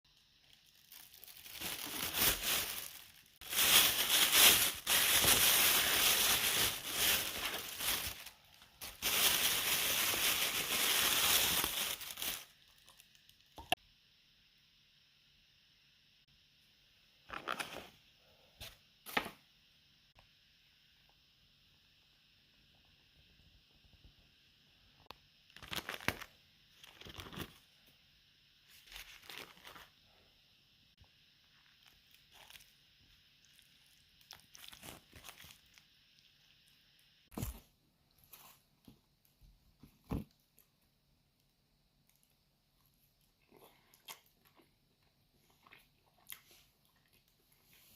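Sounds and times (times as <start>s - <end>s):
crinkling and rustling handling: 0.4s - 13.4s, 28.7s - 30.0s, 34.2s - 35.8s
crunching and chewing food: 31.5s - 32.8s, 33.4s - 36.3s, 42.0s - 47.9s.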